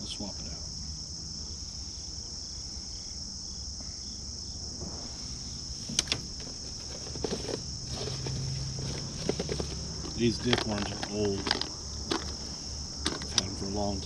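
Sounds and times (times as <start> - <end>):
crickets chirping: 0.0 - 14.0
light rattling clicks: 5.9 - 6.5, 9.2 - 12.4, 13.0 - 13.6
sharp clicks: 13.0 - 13.6.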